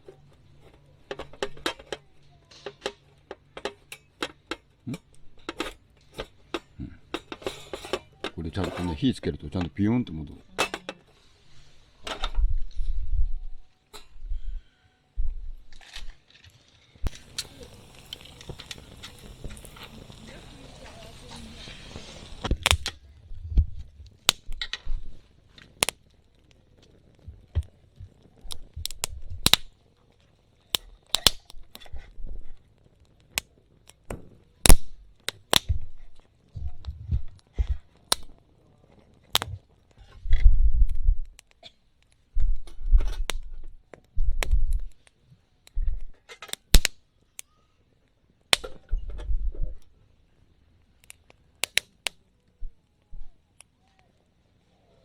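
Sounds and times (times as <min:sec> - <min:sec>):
wood snapping and crackling in fire: 0:00.0 - 0:55.0
low thumps: 0:22.3 - 0:25.2, 0:35.6 - 0:37.8.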